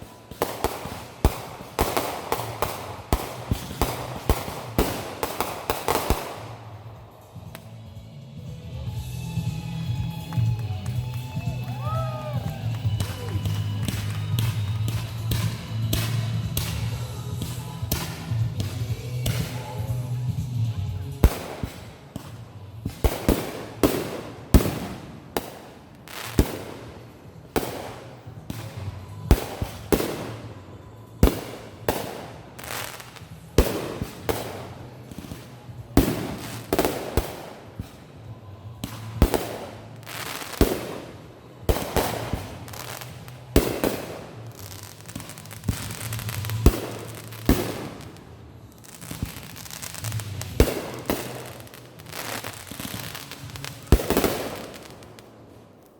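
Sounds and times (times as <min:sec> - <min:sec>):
fireworks bangs: 0:00.0 - 0:07.7, 0:10.2 - 0:20.0, 0:21.2 - 0:55.9.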